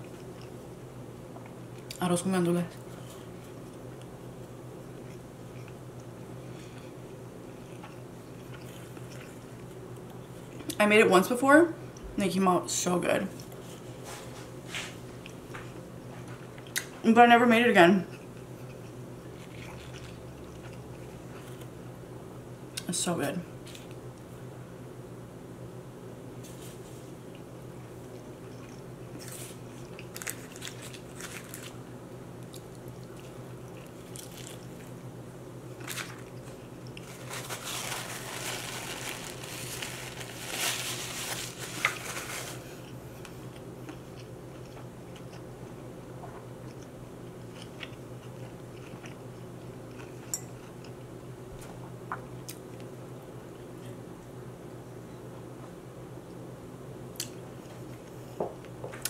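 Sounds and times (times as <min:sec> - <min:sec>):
chewing food: 0:00.0 - 0:00.6, 0:04.8 - 0:10.8, 0:18.1 - 0:21.7, 0:27.3 - 0:31.8, 0:32.4 - 0:35.0, 0:42.8 - 0:51.1
low electrical hum: 0:00.0 - 0:59.0
paper napkin rustling: 0:37.0 - 0:42.8.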